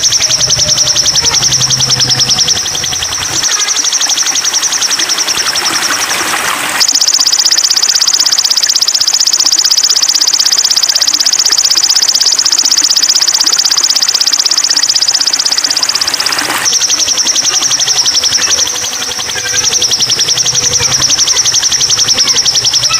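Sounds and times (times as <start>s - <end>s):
songbird trilling: 0.0s - 6.2s.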